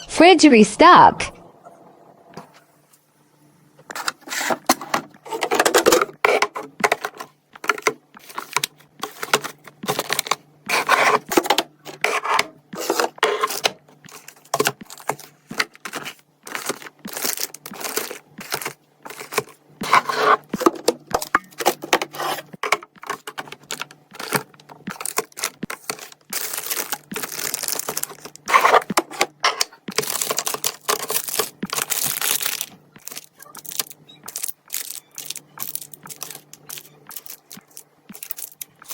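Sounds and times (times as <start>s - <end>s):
items set down with clicks and knocks: 12.8s - 38.9s
packaging rustling: 13.0s - 20.8s, 21.6s - 38.9s
plastic crinkling and tearing: 23.0s - 29.0s, 29.9s - 38.9s.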